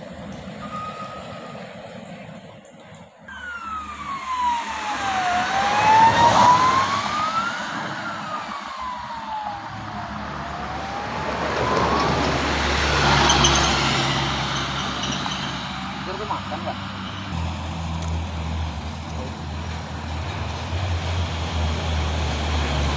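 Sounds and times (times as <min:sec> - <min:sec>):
road traffic engine rumble: 0:00.0 - 0:22.9
siren wailing: 0:00.6 - 0:02.0, 0:03.2 - 0:16.8.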